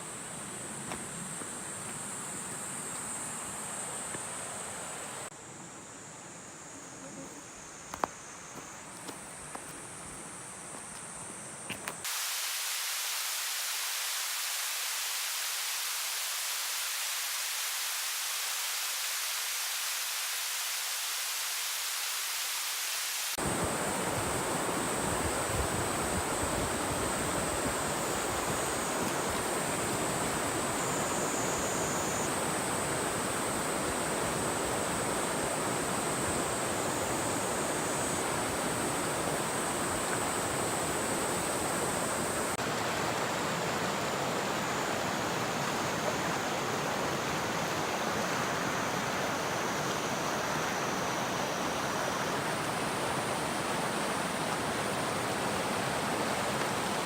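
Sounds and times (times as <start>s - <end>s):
stream rushing over rocks: 12.0s - 57.0s.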